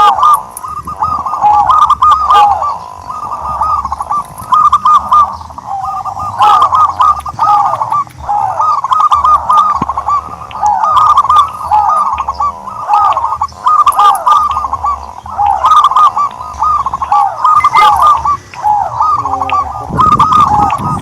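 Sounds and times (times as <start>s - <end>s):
turtledoves cooing: 0.0s - 21.0s.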